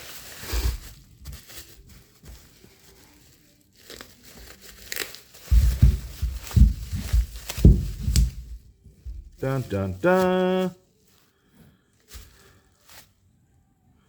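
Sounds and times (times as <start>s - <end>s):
packaging tearing and rustling: 0.0s - 8.6s
handling bumps: 5.4s - 10.0s.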